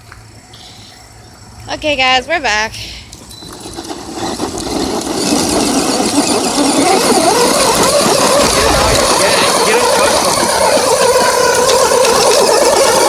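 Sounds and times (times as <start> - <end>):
tires spinning on gravelly dirt: 0.0 - 13.0
electric toy trucks whining: 2.8 - 13.0.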